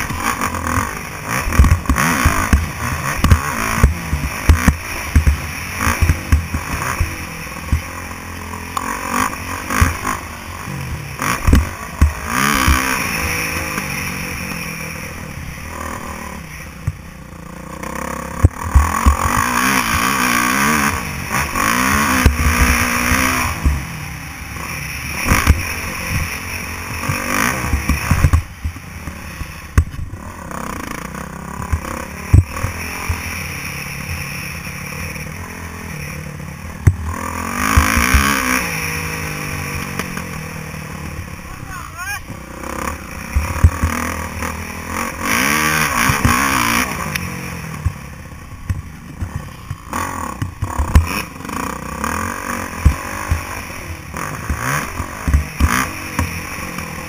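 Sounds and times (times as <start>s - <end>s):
thumps and clatter: 0.0s - 7.9s, 11.4s - 12.9s, 25.2s - 30.2s, 36.7s - 38.4s, 42.2s - 44.2s, 46.0s - 51.3s, 54.4s - 56.9s
motorbike engine revving: 0.0s - 57.0s.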